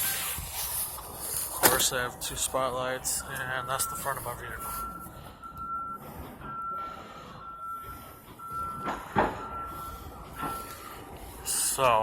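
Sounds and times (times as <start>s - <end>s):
electronic single-tone beeps: 3.2s - 11.1s
knocks: 8.8s - 9.5s.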